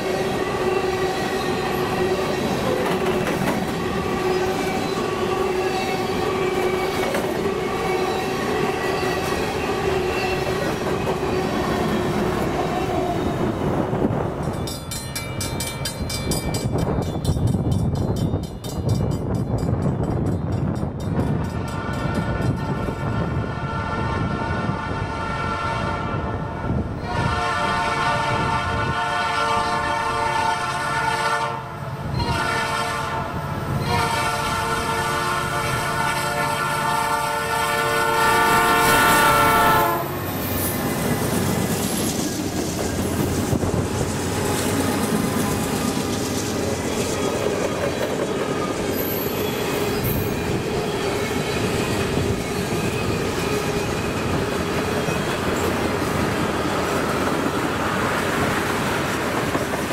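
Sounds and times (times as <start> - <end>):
freight train wheels rumbling: 0.0 - 59.9
locomotive air horn: 21.6 - 40.2.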